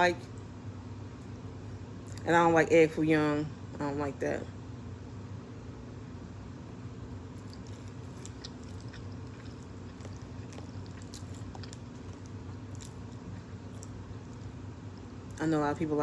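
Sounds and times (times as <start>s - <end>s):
low room hum: 0.0s - 16.0s
person chewing food: 7.1s - 15.4s.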